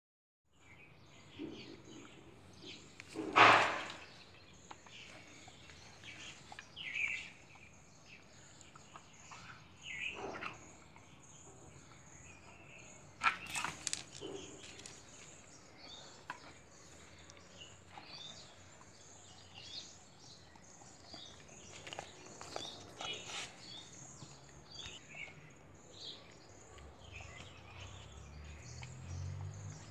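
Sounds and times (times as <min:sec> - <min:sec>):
knocks and rustles: 0:02.6 - 0:04.2.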